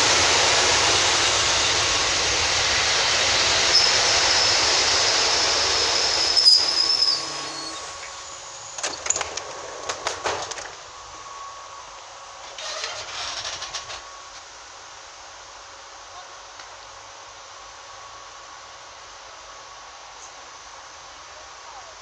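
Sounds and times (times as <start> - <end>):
train brake squeal: 0.2 - 9.2, 9.8 - 14.4.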